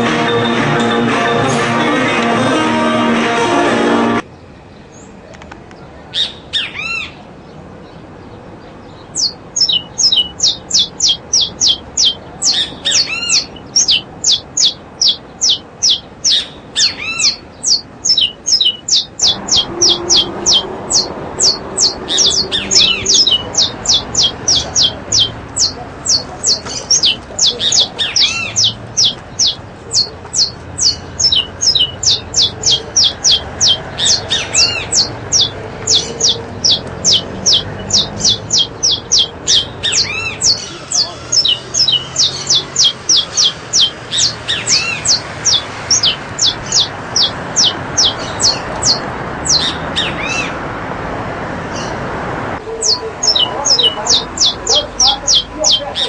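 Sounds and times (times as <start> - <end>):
birds chirping sharply: 0.0 - 50.6, 51.6 - 56.0
background hubbub: 0.0 - 56.0
bird squawk: 9.2 - 50.6, 52.7 - 56.0.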